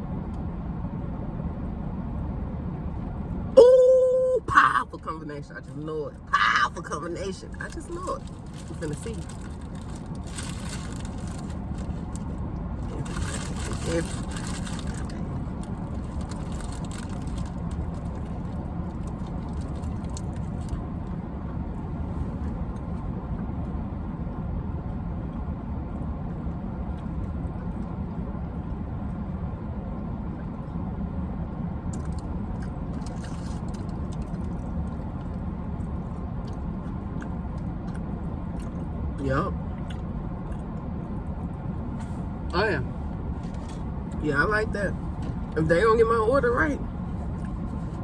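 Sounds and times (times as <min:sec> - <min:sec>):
low mechanical hum: 0:00.0 - 0:48.0
faint crackles and clicks of eating: 0:07.7 - 0:20.8, 0:31.9 - 0:38.9.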